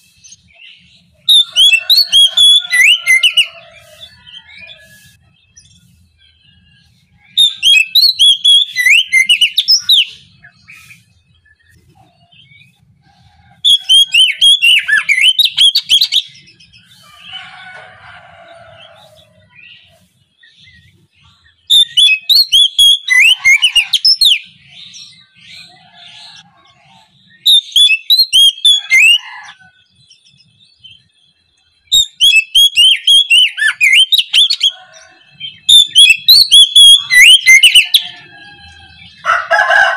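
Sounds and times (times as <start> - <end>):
bird singing rapid varied notes: 0.0 - 12.8, 35.4 - 38.1.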